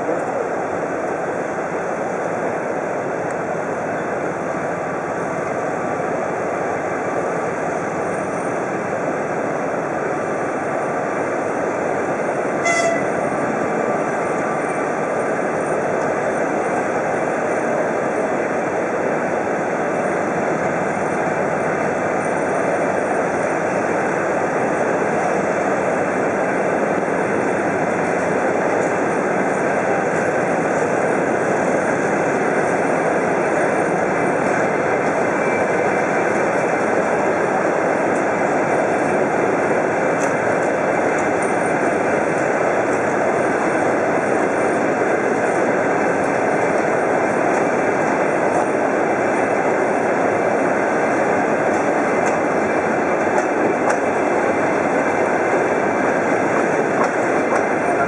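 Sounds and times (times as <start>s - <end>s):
train running noise: 0.0s - 58.0s
short sharp squeak: 12.6s - 13.1s.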